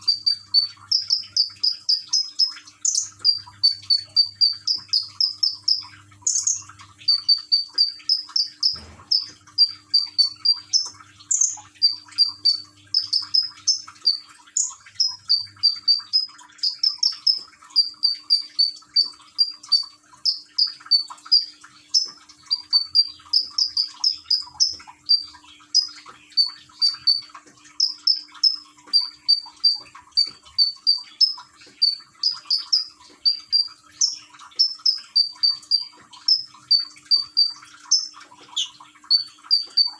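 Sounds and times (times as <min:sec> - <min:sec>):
faint trickling water: 0:00.0 - 0:39.9
songbird chirping: 0:00.0 - 0:39.9.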